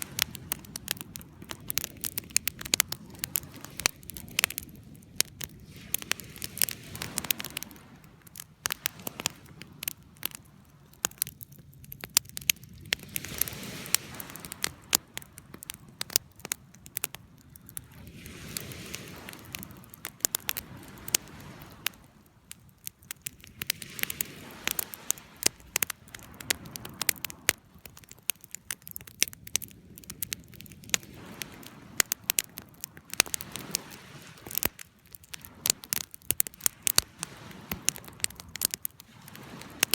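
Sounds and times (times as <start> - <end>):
flames rushing: 0.0 - 16.3, 16.9 - 22.0, 23.2 - 28.2, 28.8 - 39.9
fire crackling and popping: 0.0 - 39.9.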